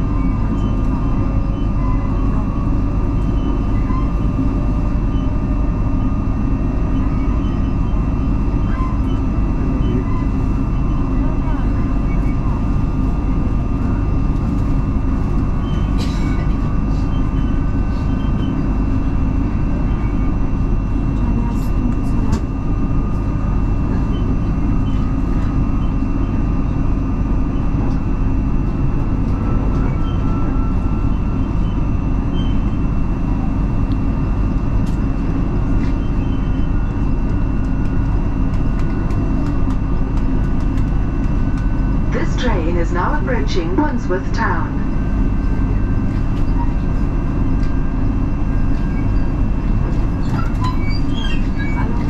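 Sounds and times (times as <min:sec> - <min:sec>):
steady high whine: 0:00.0 - 0:52.0
train wheels rumbling on rails: 0:27.4 - 0:52.0.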